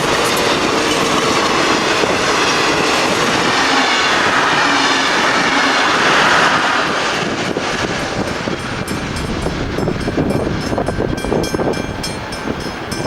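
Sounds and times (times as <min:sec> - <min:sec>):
wheels clattering over rails: 0:00.0 - 0:04.3
diesel locomotives passing: 0:00.0 - 0:13.0.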